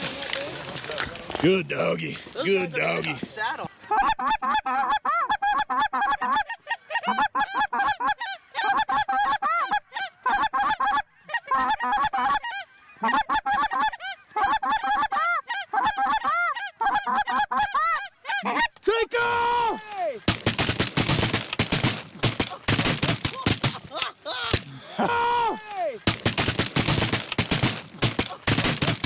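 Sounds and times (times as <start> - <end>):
goose honking and clucking: 2.8 - 18.8.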